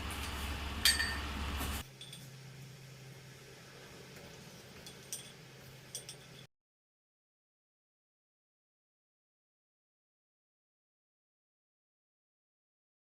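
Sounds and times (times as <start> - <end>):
steady low hum: 0.0 - 6.5
dishes clinking: 0.8 - 1.3, 1.9 - 2.3, 4.7 - 6.5.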